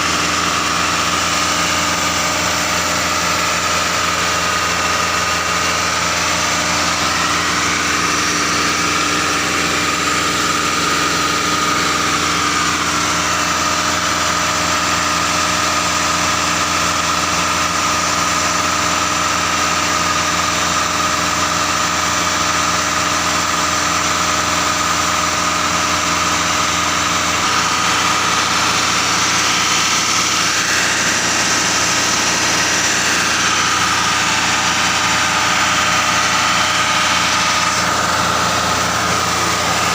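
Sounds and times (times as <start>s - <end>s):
steady high whine: 0.0s - 15.8s, 25.7s - 39.9s
truck engine running: 0.0s - 39.9s.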